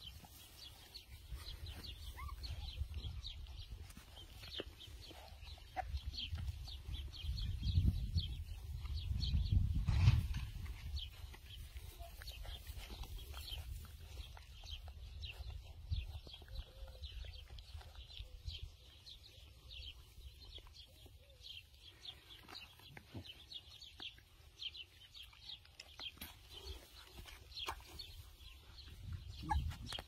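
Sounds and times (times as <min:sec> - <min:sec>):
small birds chirping: 0:00.0 - 0:30.0
wind rumble on microphone: 0:05.9 - 0:17.4.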